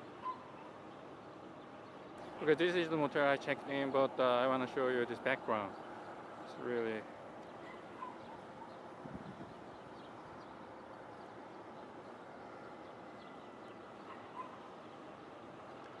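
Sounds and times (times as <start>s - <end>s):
faint high bird chirps: 0.0s - 0.8s, 7.5s - 15.0s.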